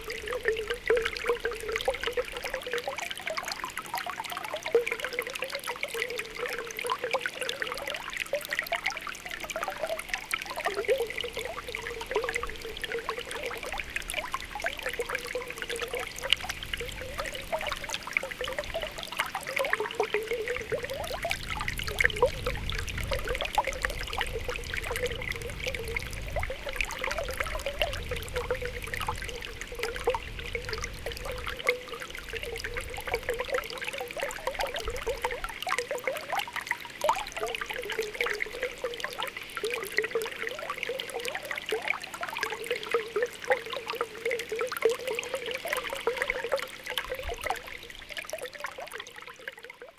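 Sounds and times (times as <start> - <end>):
spring water bubbling: 0.0 - 49.9.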